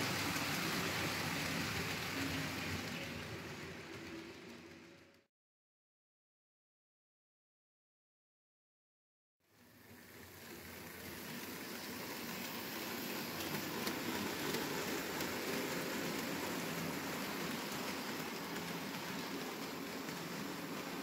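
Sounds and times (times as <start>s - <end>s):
model train wheels rattling on rails: 0.0s - 5.3s, 9.6s - 21.0s.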